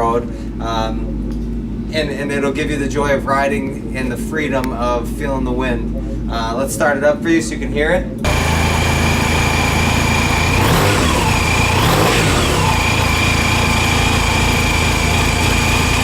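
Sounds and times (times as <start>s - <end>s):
steady high whine: 0.0s - 16.0s
scooter engine starting and revving: 8.3s - 16.0s.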